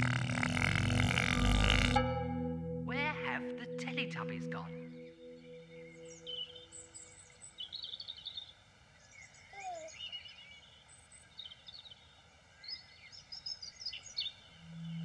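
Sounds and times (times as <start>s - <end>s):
birds chirping and singing: 3.0s - 12.0s, 12.6s - 15.0s.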